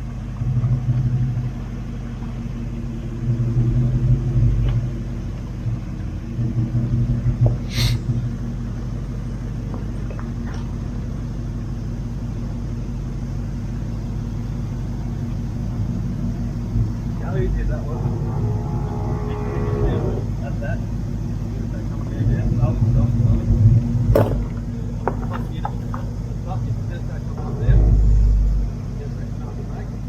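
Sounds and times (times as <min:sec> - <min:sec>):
engine droning off-road: 0:00.0 - 0:30.0
brief sharp high sound: 0:07.7 - 0:08.0.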